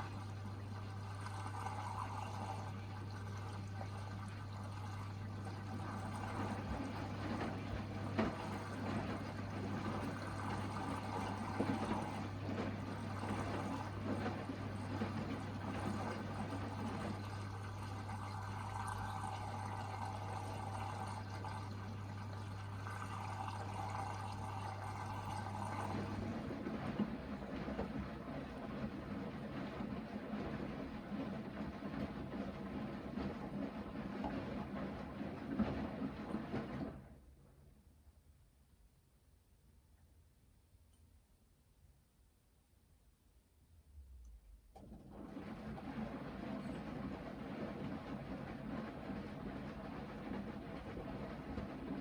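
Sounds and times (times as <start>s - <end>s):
water pouring into washing machine: 0.0s - 37.3s, 44.8s - 52.0s
low machine hum: 0.0s - 38.3s.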